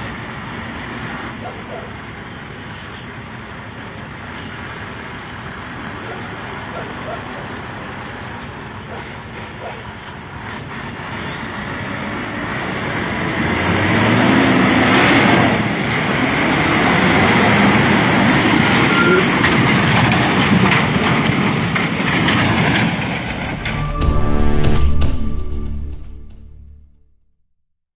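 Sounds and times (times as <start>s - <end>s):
truck diesel engine working hard: 0.0s - 25.4s.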